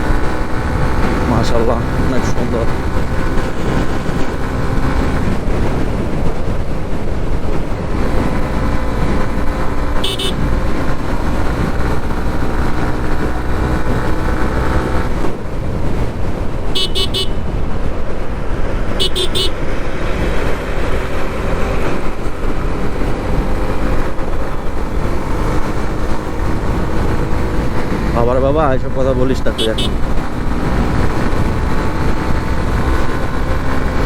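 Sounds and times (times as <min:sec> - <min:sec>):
motorcycle engine running: 0:00.0 - 0:34.0
wind and road noise: 0:00.0 - 0:34.0
vehicle horn toots: 0:10.0 - 0:10.4, 0:16.7 - 0:17.4, 0:19.0 - 0:19.6, 0:29.6 - 0:30.0.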